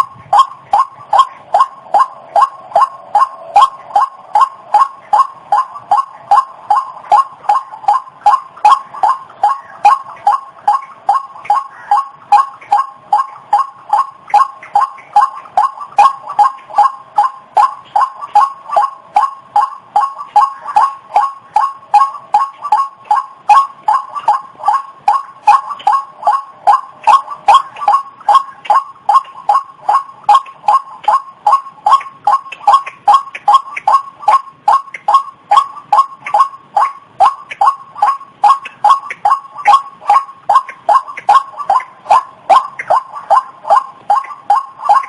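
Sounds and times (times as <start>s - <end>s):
waterhen call: 0.0s - 45.0s.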